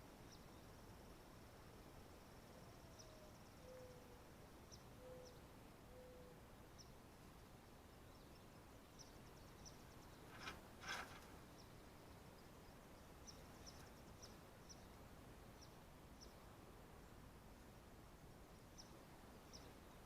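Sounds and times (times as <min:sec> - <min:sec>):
scratchy rustles: 0:10.2 - 0:11.4.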